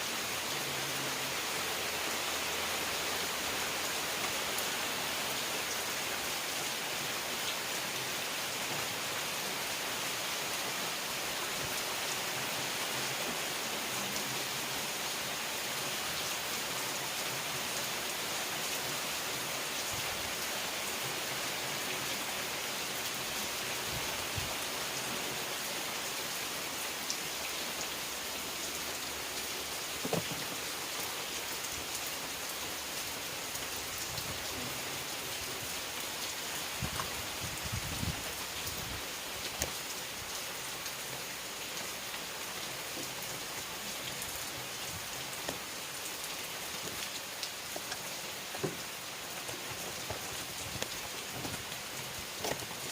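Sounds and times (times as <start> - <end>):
rain pattering on surfaces: 0.0 - 52.9
faint raindrop ticks: 39.4 - 39.9, 46.8 - 52.9.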